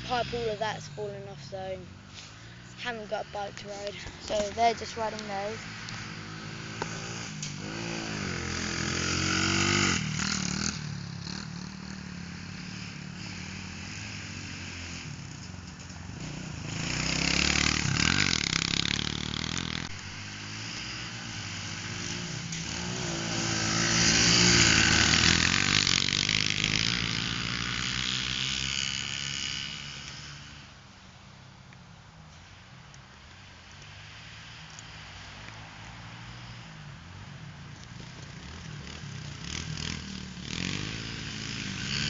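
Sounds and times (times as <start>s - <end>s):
pit bike engines revving: 0.0s - 30.8s, 33.2s - 42.0s.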